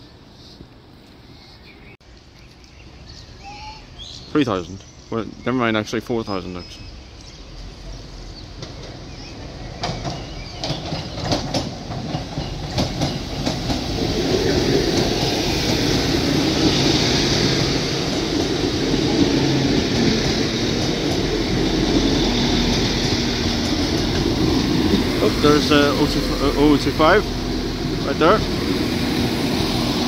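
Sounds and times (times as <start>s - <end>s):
train passing close by: 6.3s - 30.0s.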